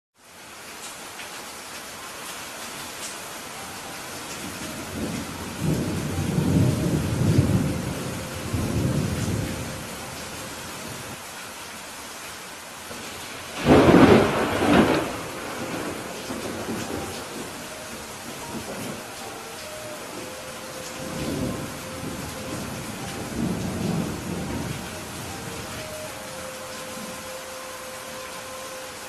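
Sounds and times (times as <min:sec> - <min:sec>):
rain hiss: 0:00.2 - 0:29.0
rolling thunder rumble: 0:04.5 - 0:11.2, 0:13.5 - 0:19.2, 0:20.0 - 0:26.2
sharp thunderclap: 0:13.6 - 0:17.4.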